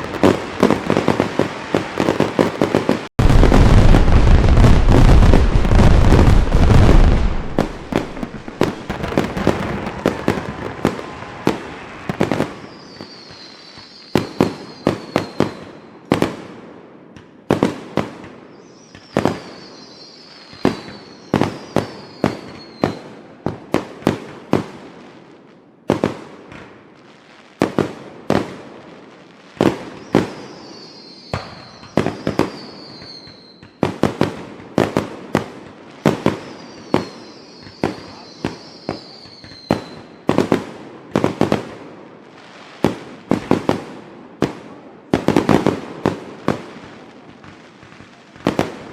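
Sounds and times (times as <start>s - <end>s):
fireworks whistles falling in pitch: 0.0s - 16.2s, 18.4s - 23.2s, 29.8s - 33.9s, 35.9s - 40.6s
fireworks bangs: 0.0s - 25.3s, 27.6s - 48.9s.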